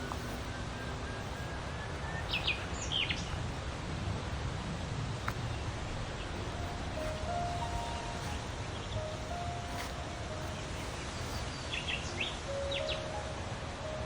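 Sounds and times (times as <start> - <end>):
falling bird chirps: 0.0 - 3.6
steady low rumble: 0.0 - 12.5.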